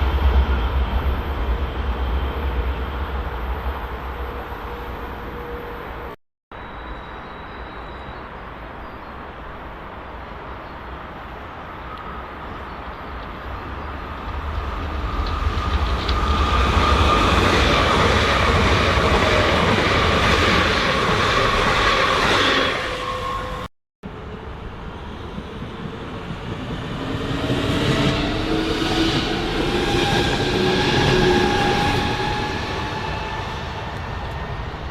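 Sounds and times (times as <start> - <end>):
train wheels rumbling on rails: 12.0 - 34.9.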